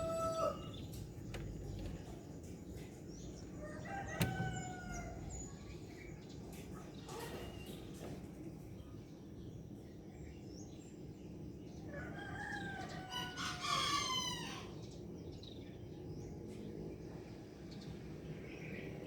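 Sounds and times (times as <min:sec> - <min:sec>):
rooster crowing: 0:00.0 - 0:00.8.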